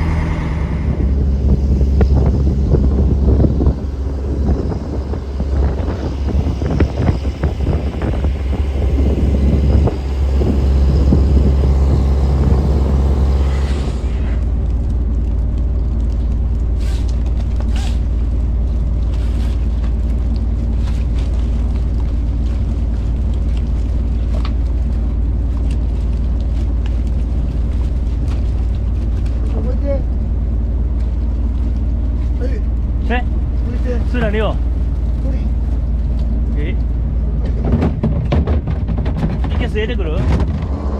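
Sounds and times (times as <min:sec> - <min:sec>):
wind buffeting microphone: 0:00.0 - 0:15.2
boat engine droning: 0:00.0 - 0:40.9.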